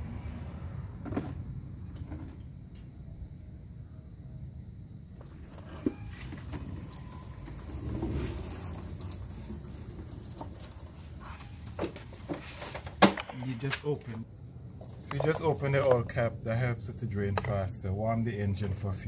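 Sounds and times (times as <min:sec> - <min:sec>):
oil pattering into drain pan: 0:05.2 - 0:13.3.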